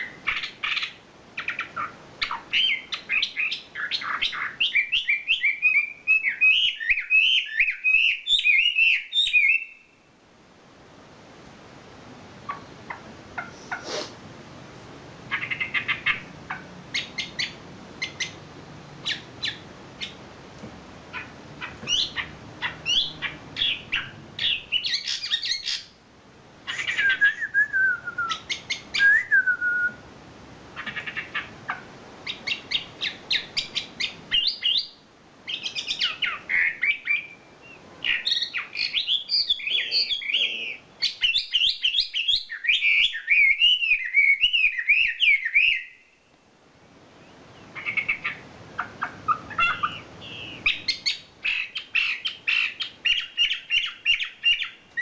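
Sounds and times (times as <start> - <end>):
songbird singing chirps and trills: 0.0 - 13.8, 14.6 - 55.0.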